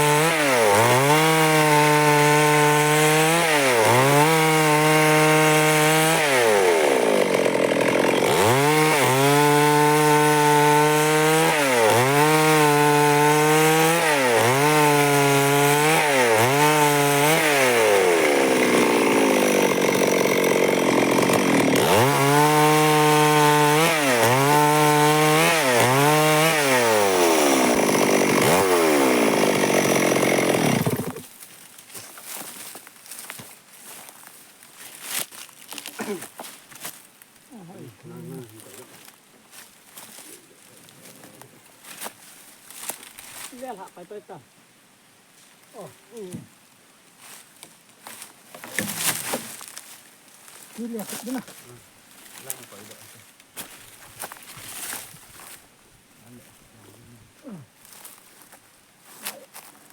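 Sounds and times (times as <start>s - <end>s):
chainsaw cutting wood: 0.0s - 31.3s, 48.6s - 49.7s.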